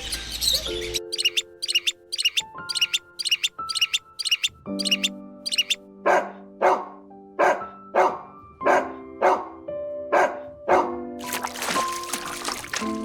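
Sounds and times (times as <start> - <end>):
soft instrumental music: 0.1 - 13.0
dog barking: 6.0 - 11.0.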